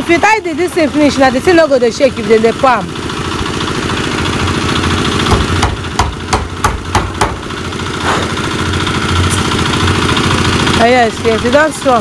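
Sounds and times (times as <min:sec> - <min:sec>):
small engine running: 0:00.0 - 0:12.0
sharp knocks: 0:05.2 - 0:08.3.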